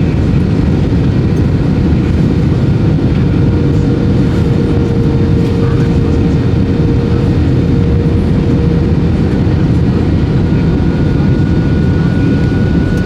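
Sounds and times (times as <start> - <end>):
aircraft cabin engine roar: 0.0 - 13.0
higher steady tone: 3.2 - 13.0.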